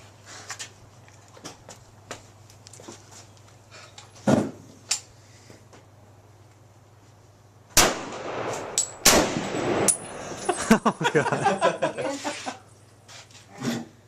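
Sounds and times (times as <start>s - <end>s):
gunshots: 7.8s - 10.0s.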